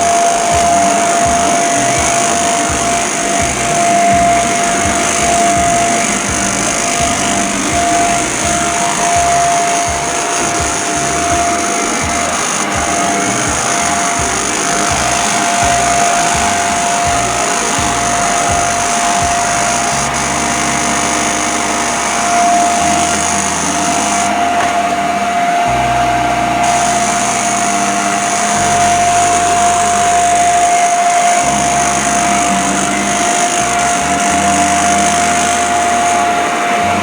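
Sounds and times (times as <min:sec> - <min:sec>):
vacuum cleaner on carpet: 0:00.0 - 0:37.0.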